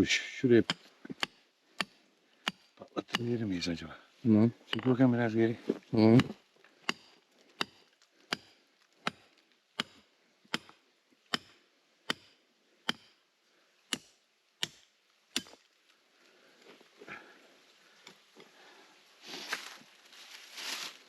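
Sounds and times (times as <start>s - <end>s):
hand tool striking rocky ground: 0.7s - 3.6s, 4.7s - 5.1s, 6.0s - 13.2s, 13.9s - 15.6s.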